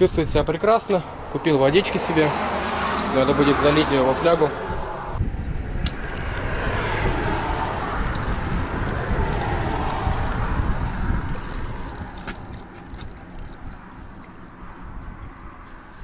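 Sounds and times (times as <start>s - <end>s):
wind buffeting microphone: 0.0s - 16.0s
water pouring into a bottle: 8.0s - 14.6s.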